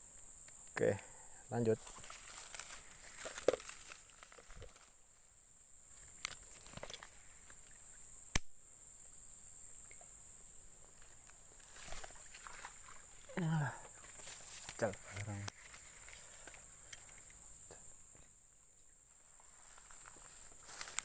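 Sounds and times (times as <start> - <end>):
high-pitched insect buzz: 0.0 - 21.0.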